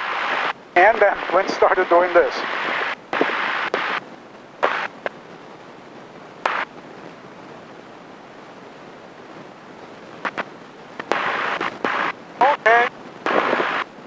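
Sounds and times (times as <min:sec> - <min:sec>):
intercom hiss: 0:00.0 - 0:04.0, 0:11.1 - 0:13.9
intercom clicks: 0:10.2 - 0:13.9.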